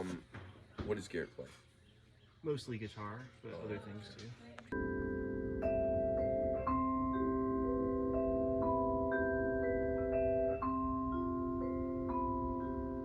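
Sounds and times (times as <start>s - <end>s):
marimba notes: 4.8s - 13.0s.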